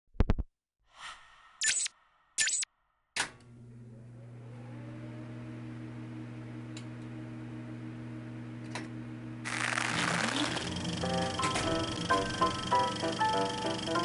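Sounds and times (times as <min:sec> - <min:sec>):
low humming drone: 0:05.4 - 0:14.0.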